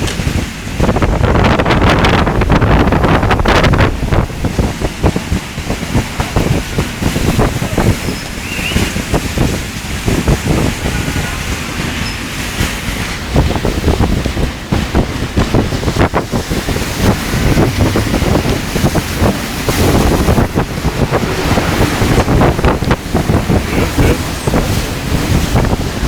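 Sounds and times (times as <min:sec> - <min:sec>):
heavy rain: 0:00.0 - 0:26.0
wind gusts buffeting microphone: 0:00.0 - 0:26.0.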